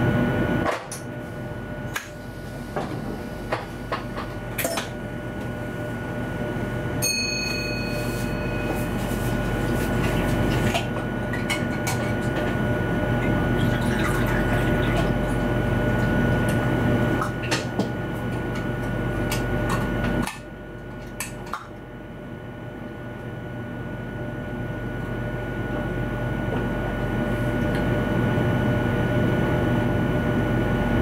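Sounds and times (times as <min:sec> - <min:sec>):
high whine: 0:00.0 - 0:20.7.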